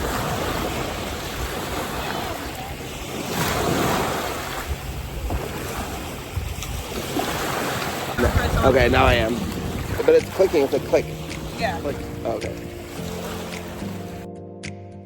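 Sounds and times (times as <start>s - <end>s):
wind buffeting microphone: 0.0s - 14.2s
waves washing ashore: 0.0s - 14.3s.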